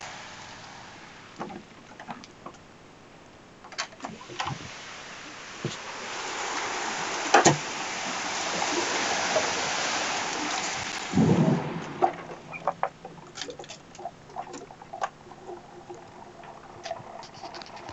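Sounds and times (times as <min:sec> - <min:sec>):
heavy rain downpour: 0:00.0 - 0:01.4, 0:04.1 - 0:12.8.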